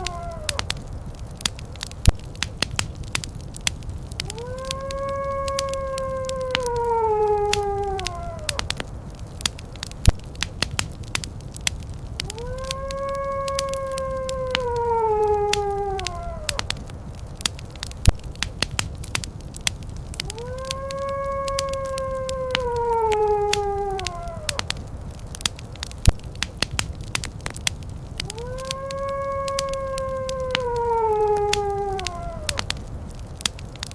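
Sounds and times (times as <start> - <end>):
howl-like call: 0.0 - 1.6, 4.0 - 9.5, 12.0 - 18.3, 20.0 - 25.9, 28.0 - 33.9
wood fire crackling: 0.0 - 33.9.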